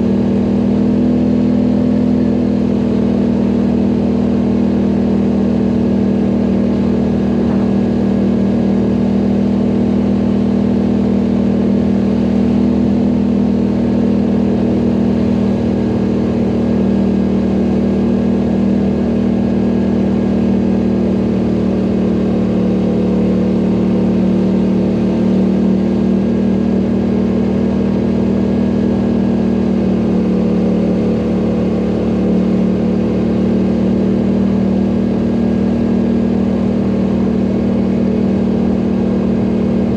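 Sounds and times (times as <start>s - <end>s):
atv engine droning: 0.0s - 39.9s.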